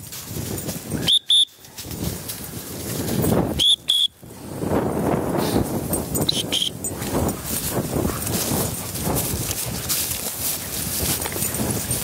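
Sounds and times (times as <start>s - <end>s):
dog whistle toots: 1.0s - 1.5s, 3.6s - 4.2s, 6.3s - 6.7s
rustling through tall grass: 6.9s - 12.0s.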